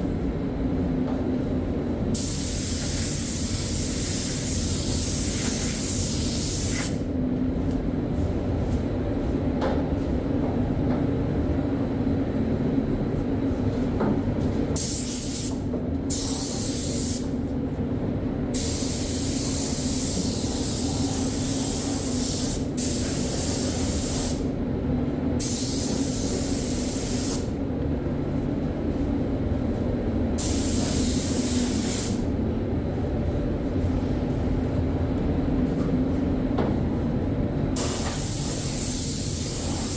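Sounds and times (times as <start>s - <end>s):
low machine hum: 0.0s - 39.9s
spray gun hissing: 18.6s - 24.4s, 30.4s - 32.2s, 37.8s - 39.9s.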